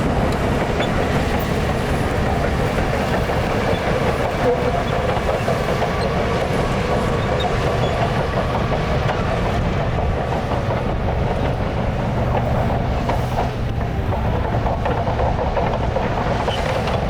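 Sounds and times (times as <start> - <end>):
diesel engine running: 0.0 - 17.0
steel tracks clattering: 0.0 - 17.0.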